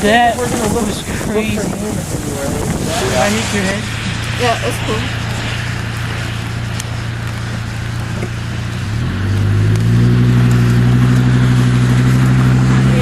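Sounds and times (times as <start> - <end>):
car engine running: 0.0 - 13.0
road noise: 0.0 - 13.0.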